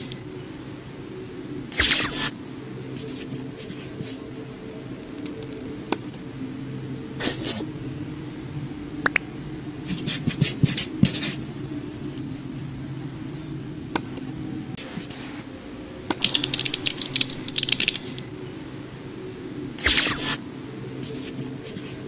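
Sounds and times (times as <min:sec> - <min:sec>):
steady low hum: 0:00.0 - 0:22.0
sharp clicks: 0:16.1 - 0:18.3.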